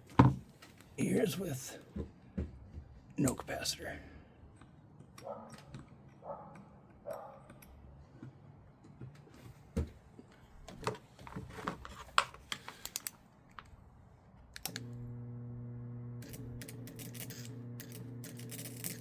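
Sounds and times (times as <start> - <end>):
transformer humming: 14.7 - 19.0.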